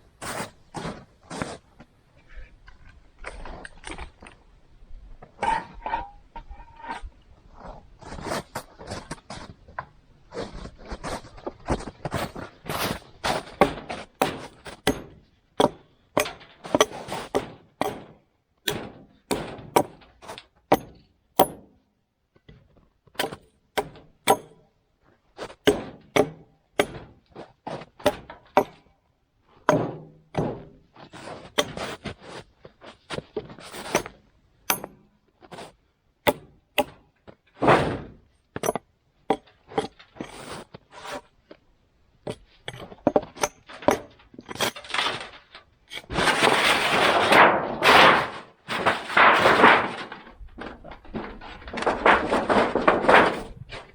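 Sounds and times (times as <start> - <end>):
axe chopping branches: 23.2 - 24.6, 25.6 - 27.1, 28.0 - 28.9, 29.7 - 30.8, 36.3 - 37.0.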